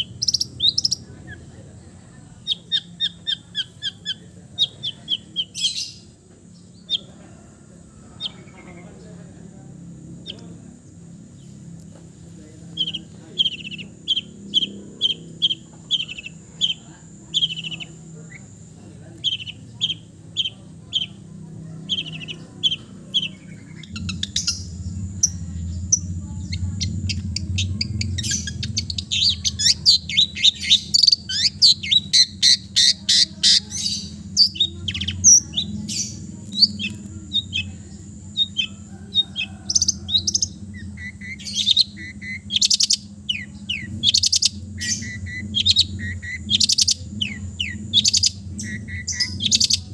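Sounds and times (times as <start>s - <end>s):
low steady hum: 0.0s - 49.9s
shrike singing: 0.0s - 49.9s.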